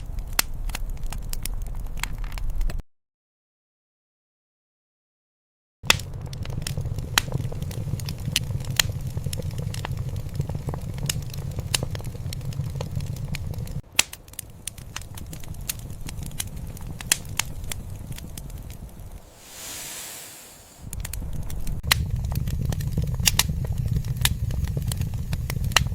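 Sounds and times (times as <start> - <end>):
wood fire crackling: 0.0 - 2.8, 5.8 - 25.9
low steady rumble: 6.1 - 13.8, 19.1 - 25.9.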